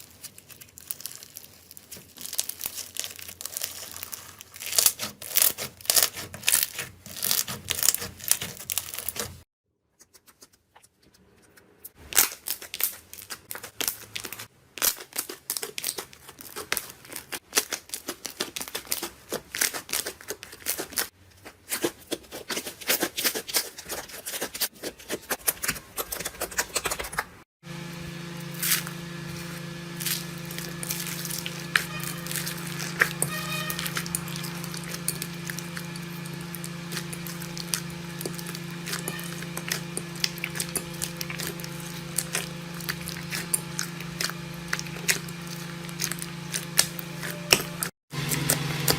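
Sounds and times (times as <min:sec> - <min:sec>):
slime crackling and popping: 0:00.0 - 0:09.4, 0:28.6 - 0:48.9.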